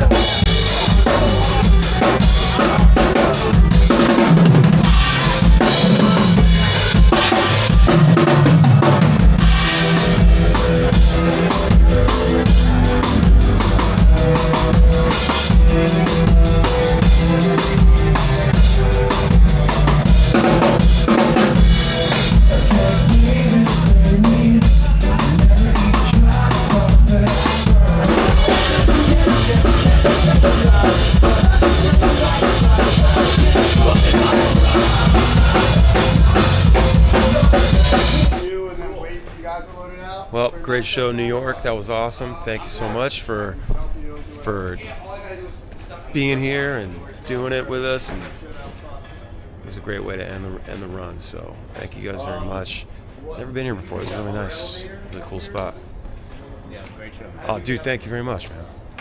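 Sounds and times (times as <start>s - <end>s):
rock band music: 0.0s - 38.5s.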